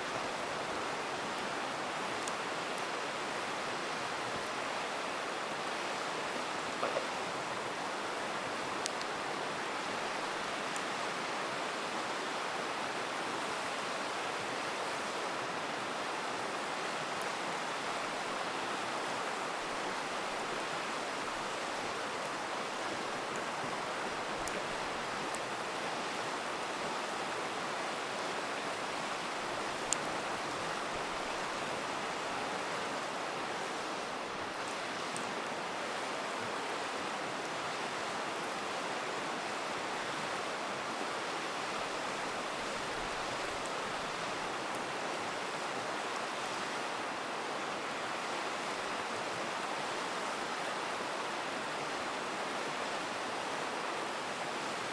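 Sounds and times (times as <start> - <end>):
river flowing: 0.0 - 54.9
campfire crackling and popping: 1.2 - 3.0, 6.5 - 7.9, 8.6 - 9.2, 19.6 - 25.5, 28.2 - 32.0.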